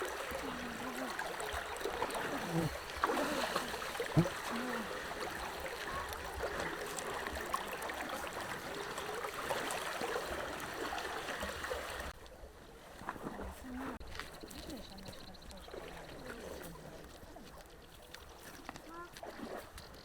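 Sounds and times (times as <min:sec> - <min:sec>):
stream trickling and gurgling: 0:00.0 - 0:20.0.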